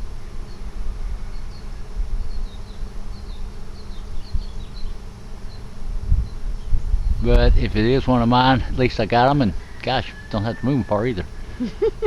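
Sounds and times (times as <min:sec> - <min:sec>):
bee swarm buzzing: 0:00.0 - 0:12.0
low uneven rumble: 0:06.0 - 0:09.8.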